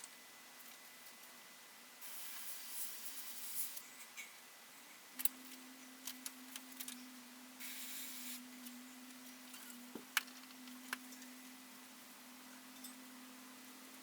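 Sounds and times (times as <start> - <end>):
airbrush spray hiss: 2.0 - 3.8, 7.6 - 8.4.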